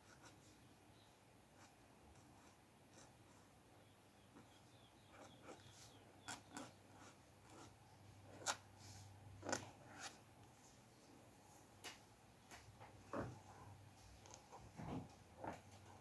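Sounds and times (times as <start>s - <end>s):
pen nib scratching on paper: 4.4s - 8.7s.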